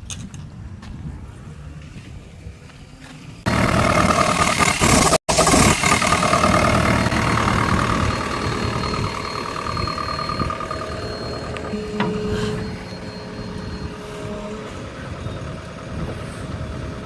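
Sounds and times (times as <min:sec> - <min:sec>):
engine whine: 0:01.3 - 0:17.0
heavy diesel engine running: 0:03.5 - 0:17.0.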